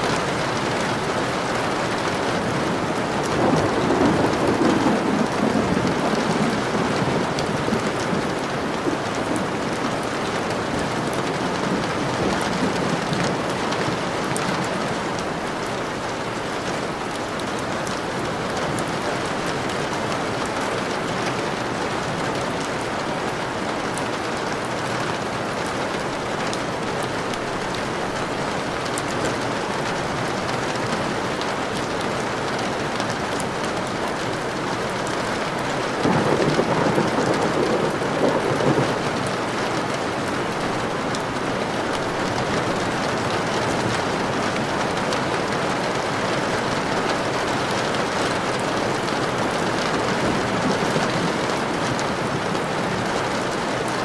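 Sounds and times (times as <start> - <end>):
steady rain: 0.0 - 54.0
thunder rolling: 0.1 - 14.2, 36.0 - 46.0.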